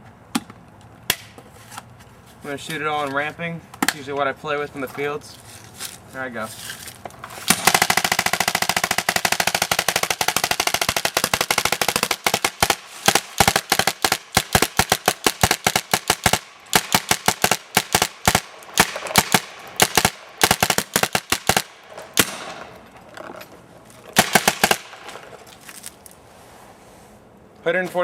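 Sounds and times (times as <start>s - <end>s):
paintball marker firing: 7.4s - 22.8s, 24.2s - 25.4s.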